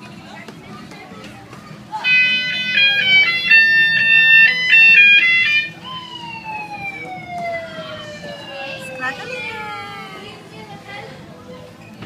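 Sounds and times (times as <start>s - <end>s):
toy car electronic beeping jingle: 2.0s - 5.7s
long falling electronic tone: 2.1s - 5.7s.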